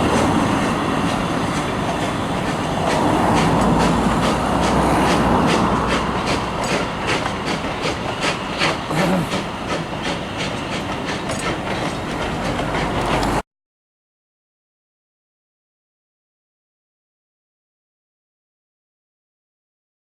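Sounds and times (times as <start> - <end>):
train rumble: 0.0 - 13.4
train wheels clicking over rail joints: 0.0 - 13.4.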